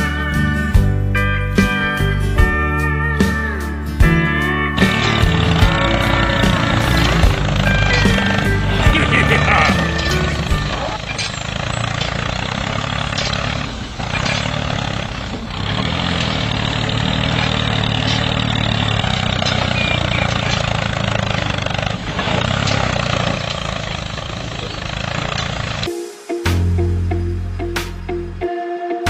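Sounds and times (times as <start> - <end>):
music: 0.0 - 11.3, 25.8 - 29.0
small engine running: 4.8 - 25.9.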